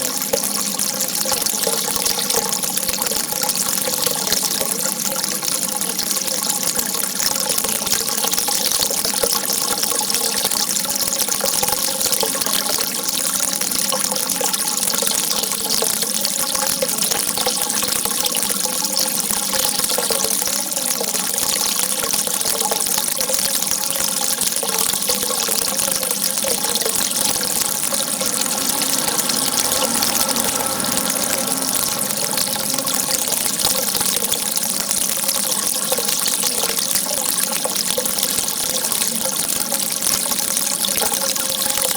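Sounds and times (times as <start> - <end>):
rushing water hiss: 26.1 - 34.7.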